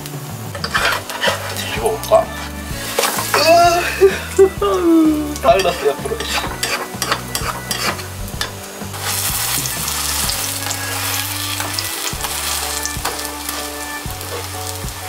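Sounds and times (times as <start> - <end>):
pancake sizzling in oil: 0.0 - 15.0
spatula pressing on pancake: 0.6 - 3.4, 5.6 - 9.2.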